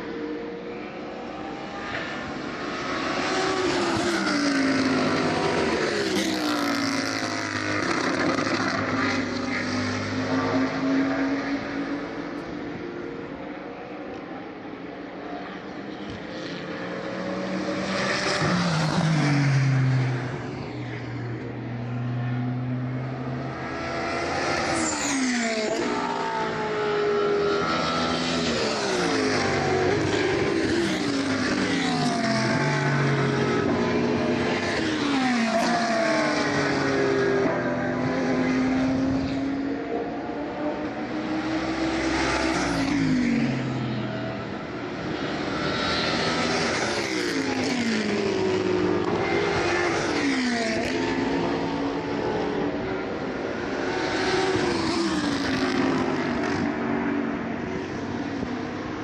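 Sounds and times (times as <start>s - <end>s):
race cars passing: 0.0s - 59.0s
engines revving hard: 40.2s - 58.5s.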